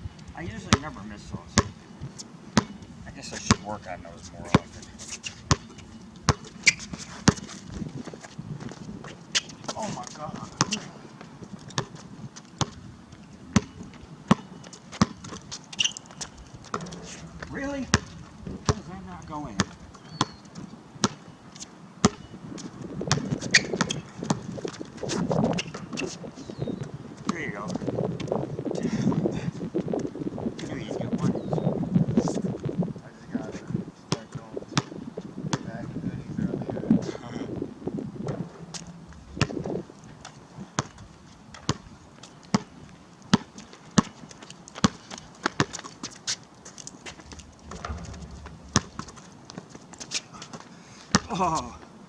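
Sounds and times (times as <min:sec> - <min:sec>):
basketball bouncing on pavement: 0:00.6 - 0:01.8, 0:02.6 - 0:02.8, 0:03.4 - 0:03.8, 0:04.5 - 0:04.8, 0:05.4 - 0:12.9, 0:13.5 - 0:20.4, 0:21.0 - 0:21.3, 0:22.0 - 0:26.2, 0:34.1 - 0:35.7, 0:39.4 - 0:39.8, 0:40.8 - 0:41.0, 0:41.6 - 0:46.3, 0:47.1 - 0:51.6
basketball bouncing on hard court: 0:02.6 - 0:02.8, 0:05.5 - 0:07.5, 0:10.6 - 0:11.0, 0:11.8 - 0:12.0, 0:12.6 - 0:12.8, 0:13.6 - 0:19.0, 0:19.6 - 0:20.4, 0:22.0 - 0:22.3, 0:23.1 - 0:24.8, 0:47.7 - 0:49.2.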